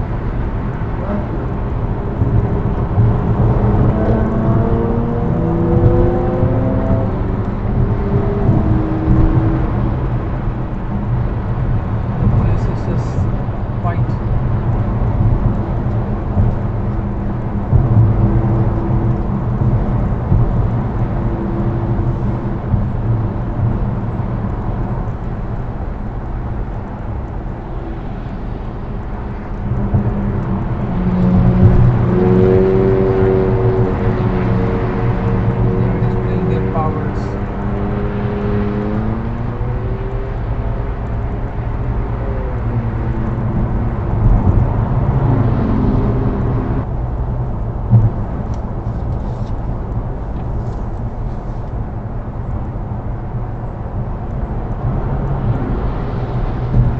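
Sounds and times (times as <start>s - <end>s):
road and engine rumble: 0.0s - 56.9s
vehicle accelerating: 0.0s - 56.9s.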